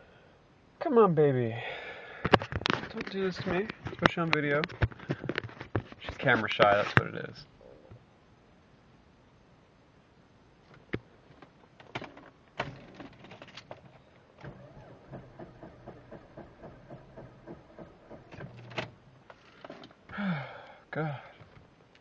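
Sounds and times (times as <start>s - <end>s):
starter motor cranking engine: 14.4s - 18.8s.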